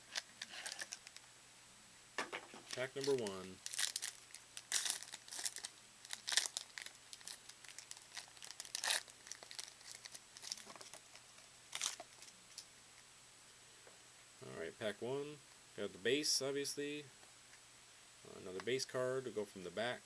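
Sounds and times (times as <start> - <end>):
wrapper tearing and crinkling: 0.0 - 1.2, 2.7 - 12.3.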